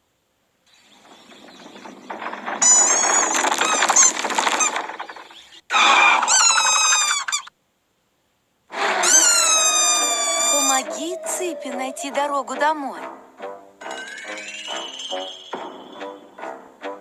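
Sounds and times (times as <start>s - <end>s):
squeaky creature chirping cries: 8.8s - 12.6s.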